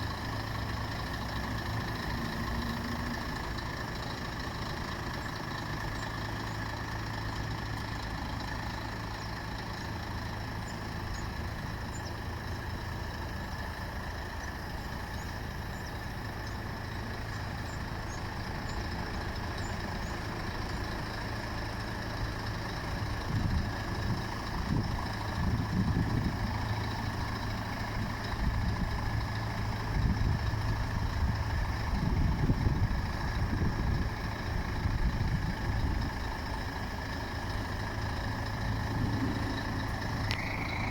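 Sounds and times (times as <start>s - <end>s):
truck diesel engine idling: 0.0s - 40.9s
low rumbling surges: 37.6s - 40.9s.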